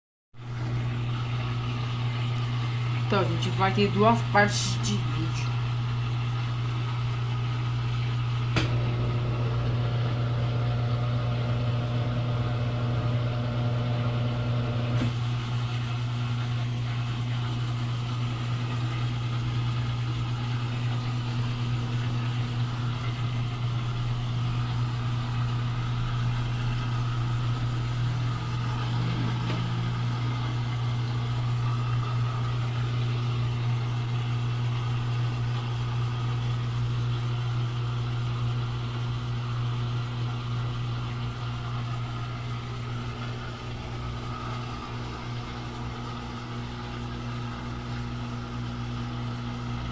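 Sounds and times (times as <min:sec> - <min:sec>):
washing machine motor hum: 0:00.4 - 0:49.9
washing machine whine: 0:00.4 - 0:49.9
washing machine click: 0:08.5 - 0:08.9.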